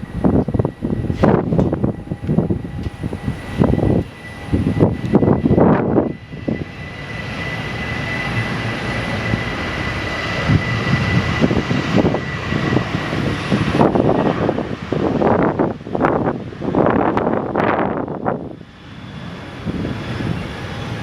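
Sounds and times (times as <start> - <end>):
aircraft engines whining: 0.0 - 21.0
wind buffeting the microphone: 0.0 - 21.0.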